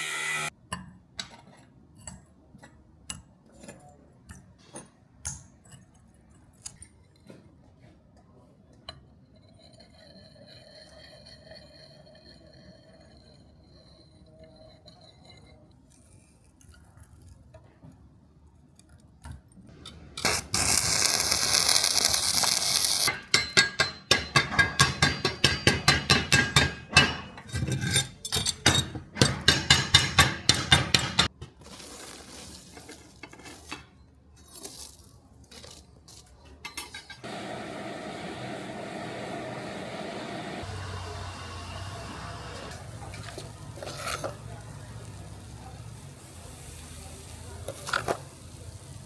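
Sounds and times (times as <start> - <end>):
hammer striking steel: 23.0 - 27.5, 28.3 - 31.3.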